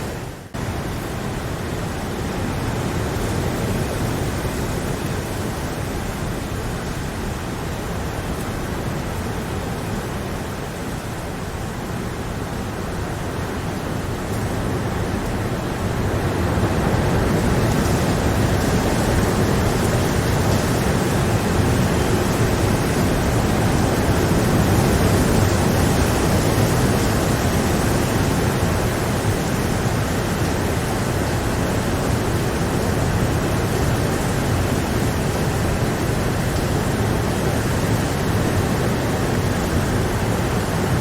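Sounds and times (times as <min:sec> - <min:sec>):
steady rain: 0:00.0 - 0:41.0.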